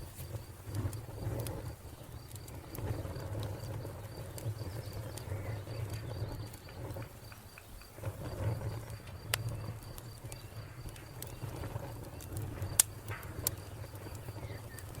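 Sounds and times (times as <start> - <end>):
wood fire crackling: 0.0 - 15.0
cricket chirping: 2.2 - 14.8.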